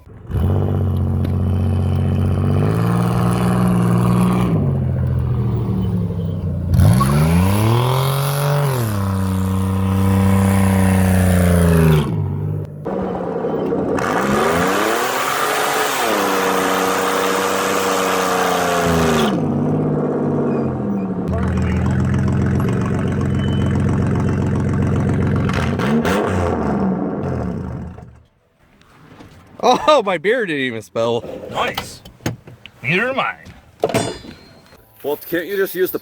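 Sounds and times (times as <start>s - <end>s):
engine revving: 0.0s - 28.2s.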